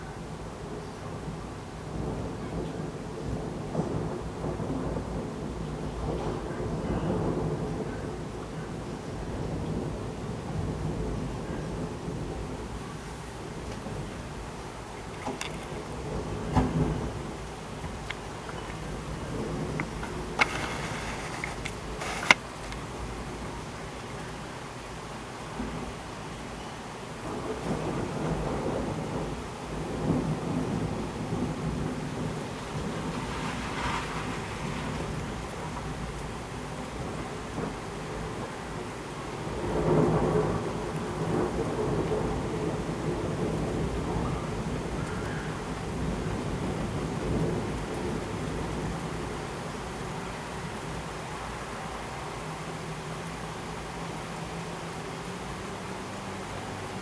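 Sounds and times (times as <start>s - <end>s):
heavy rain hissing: 0.0s - 57.0s
thunder rumbling: 0.3s - 24.4s, 26.9s - 57.0s
sharp clicks: 19.7s - 22.8s.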